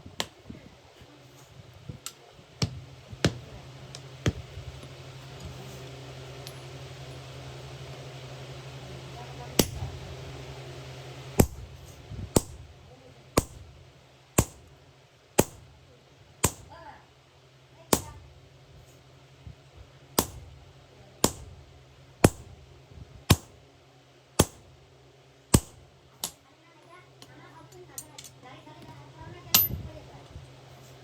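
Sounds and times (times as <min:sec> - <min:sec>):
hammer striking iron: 0:09.6 - 0:09.8, 0:12.4 - 0:12.6, 0:13.4 - 0:13.6, 0:14.4 - 0:14.7, 0:15.4 - 0:15.6, 0:16.4 - 0:16.7, 0:17.9 - 0:18.2, 0:20.2 - 0:20.5, 0:21.2 - 0:21.6, 0:22.2 - 0:22.6, 0:23.3 - 0:23.6, 0:24.4 - 0:24.7, 0:25.5 - 0:26.4, 0:29.6 - 0:29.8.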